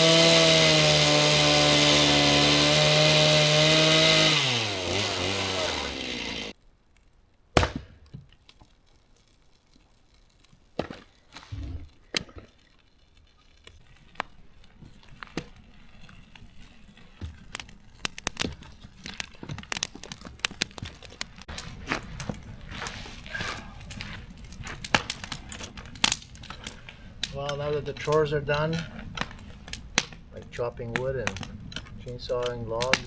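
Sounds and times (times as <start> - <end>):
firewood being split: 0.0 - 33.0.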